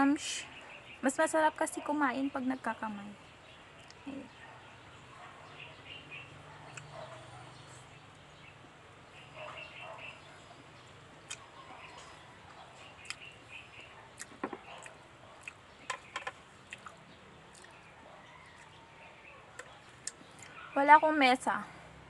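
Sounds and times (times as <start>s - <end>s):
faint bird chirps: 0.2s - 1.3s, 3.1s - 21.1s
chewing and lip smacking: 6.6s - 7.3s, 11.2s - 18.8s, 19.6s - 20.6s.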